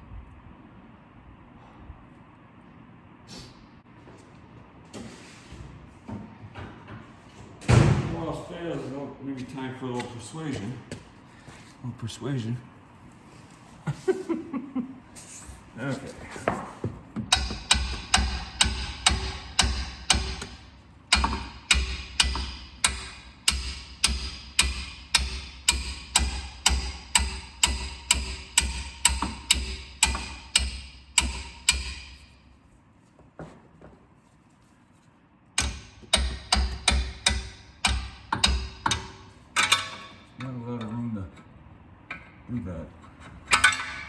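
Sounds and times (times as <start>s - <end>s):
hammer striking metal: 17.3s - 32.4s, 35.6s - 40.2s.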